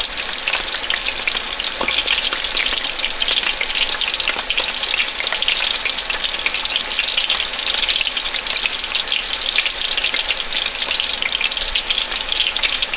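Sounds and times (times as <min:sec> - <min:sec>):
food sizzling in a pan: 0:00.0 - 0:12.9.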